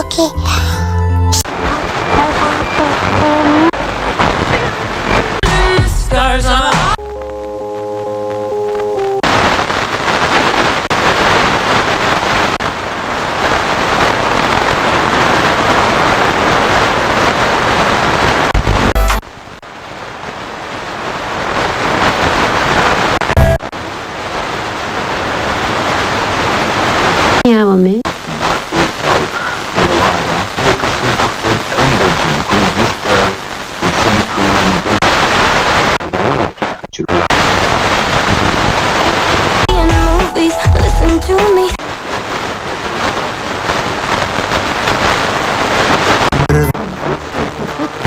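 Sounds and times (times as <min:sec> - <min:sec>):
radio static hiss: 0:01.4 - 0:07.0, 0:08.7 - 0:48.0
organ music on radio: 0:05.2 - 0:09.6, 0:39.7 - 0:41.7.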